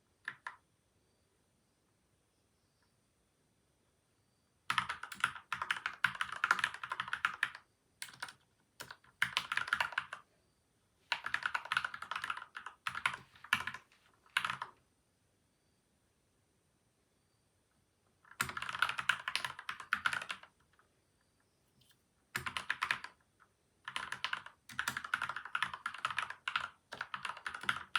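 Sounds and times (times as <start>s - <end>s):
typing on mechanical keyboard: 0.2s - 0.6s, 4.7s - 10.2s, 11.1s - 14.8s, 18.3s - 20.6s, 22.4s - 23.2s, 23.8s - 27.9s.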